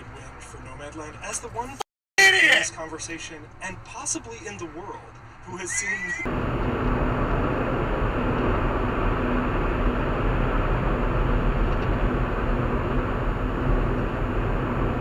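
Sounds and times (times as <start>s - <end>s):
car driving at highway speed: 6.3s - 15.0s.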